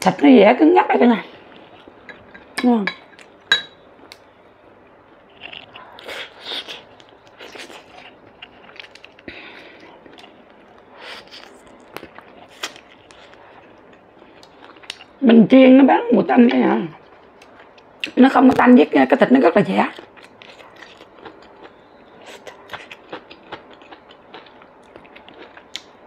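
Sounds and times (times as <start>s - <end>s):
person chewing food: 1.4s - 2.6s, 5.1s - 15.2s, 19.9s - 26.0s.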